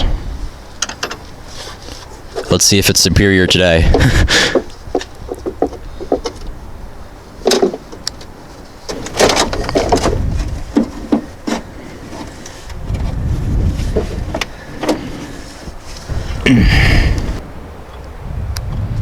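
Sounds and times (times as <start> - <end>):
car battery clicks and clunks: 7.4 - 13.2, 13.8 - 16.4
low rumble: 16.0 - 19.0.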